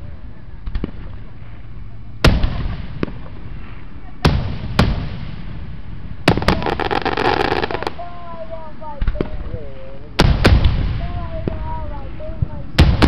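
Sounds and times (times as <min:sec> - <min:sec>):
crackling firework reports: 0:00.0 - 0:13.0
firework booms: 0:02.2 - 0:08.3, 0:09.0 - 0:13.0.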